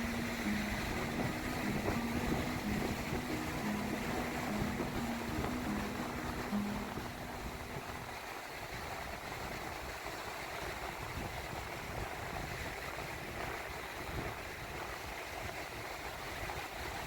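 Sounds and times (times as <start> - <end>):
low held tones: 0.0 - 8.3
gentle waves on sandy beach: 0.0 - 17.0
wind rumbling on microphone: 0.0 - 17.0.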